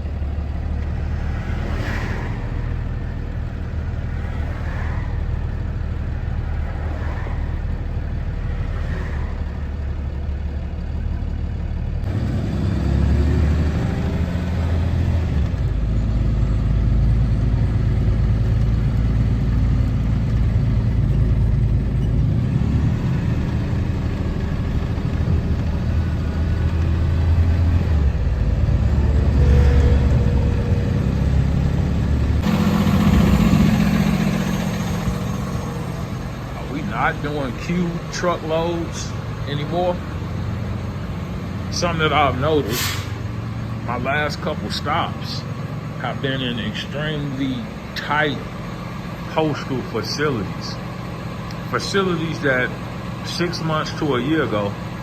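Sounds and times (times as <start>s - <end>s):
road noise: 0.0s - 55.0s
truck engine: 0.0s - 55.0s.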